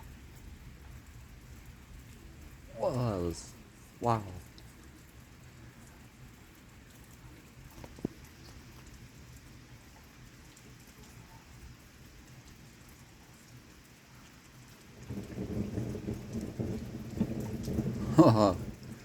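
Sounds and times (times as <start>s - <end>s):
steady rain falling: 0.0s - 19.0s
low rumble of thunder: 14.9s - 19.0s.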